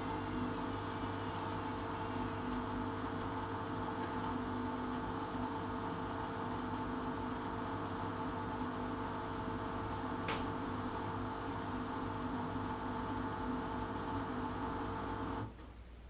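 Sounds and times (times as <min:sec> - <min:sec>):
washing machine humming: 0:00.0 - 0:15.8.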